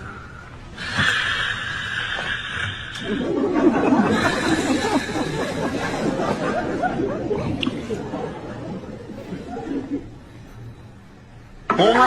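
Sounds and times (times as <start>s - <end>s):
steady hiss: 0.0s - 9.2s
people chattering and laughing: 3.0s - 11.7s.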